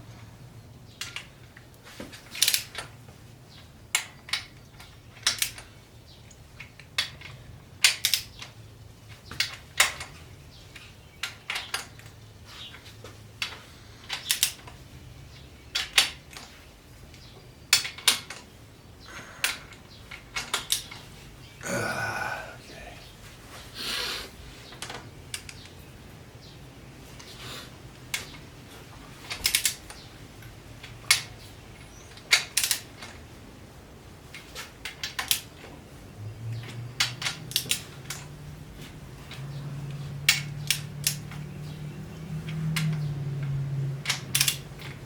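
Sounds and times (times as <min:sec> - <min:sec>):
hand tools clicking on metal: 0:13.4 - 0:14.8, 0:29.3 - 0:30.0, 0:36.5 - 0:38.4, 0:39.2 - 0:45.0.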